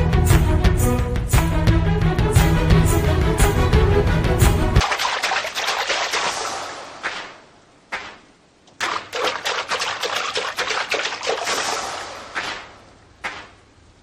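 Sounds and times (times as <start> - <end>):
splashing rushing water: 4.8 - 7.6, 8.5 - 13.5.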